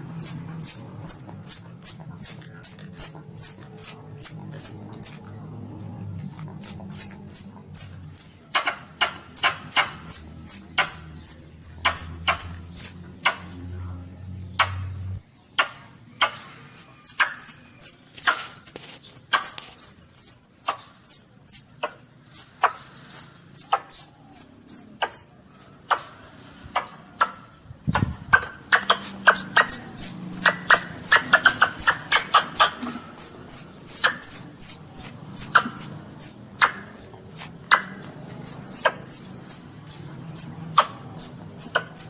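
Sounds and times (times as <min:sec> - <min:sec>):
civet kitten squeaking: 0:00.0 - 0:05.4, 0:06.2 - 0:13.0, 0:16.7 - 0:25.7, 0:28.7 - 0:42.0.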